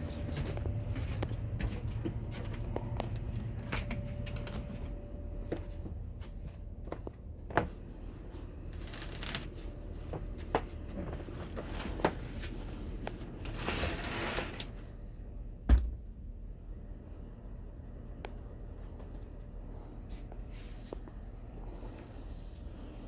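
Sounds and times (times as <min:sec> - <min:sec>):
air conditioning hum: 0:00.0 - 0:23.0
heavy thump: 0:15.7 - 0:16.1.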